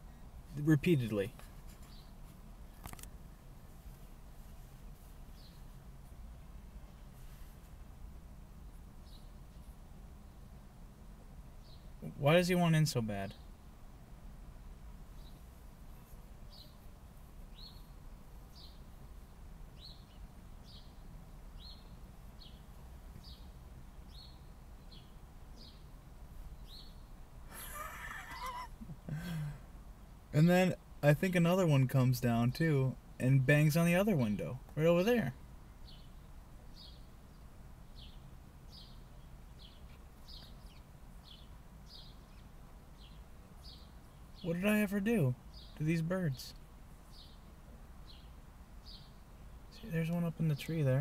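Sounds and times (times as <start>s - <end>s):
small bird chirping: 0.7s - 2.2s, 5.3s - 5.8s, 9.0s - 10.4s, 11.6s - 12.1s, 15.1s - 29.4s, 35.7s - 44.8s, 45.4s - 50.8s.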